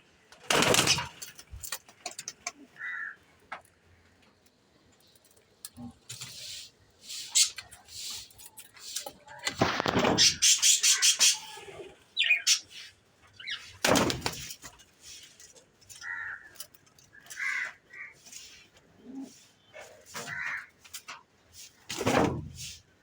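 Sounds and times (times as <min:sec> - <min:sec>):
birds calling: 0:02.0 - 0:14.6, 0:15.3 - 0:21.1.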